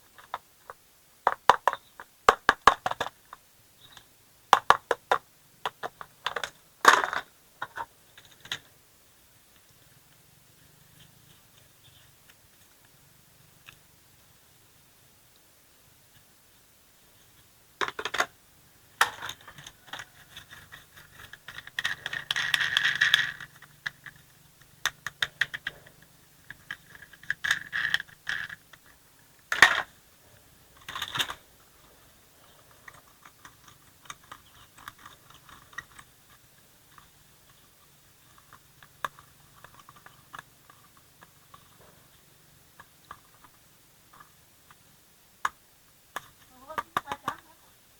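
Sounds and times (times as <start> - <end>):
sharp plastic clacks: 0.1 - 8.7, 17.8 - 18.4, 19.0 - 29.9, 30.8 - 31.5, 32.7 - 42.2
plastic toy truck rattling: 1.2 - 3.4, 4.5 - 8.7, 17.3 - 30.0, 30.7 - 44.8, 45.4 - 47.5.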